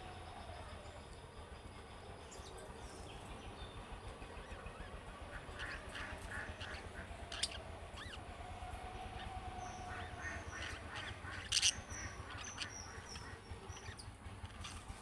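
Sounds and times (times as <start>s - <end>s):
budgerigars chirping and chattering: 5.5s - 8.2s, 9.6s - 15.0s.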